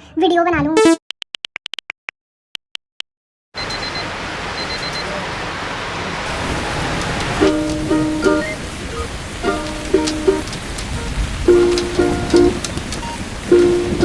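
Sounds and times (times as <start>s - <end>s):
heavy rain hiss: 3.6s - 14.0s
plucked ukulele music: 7.4s - 14.0s.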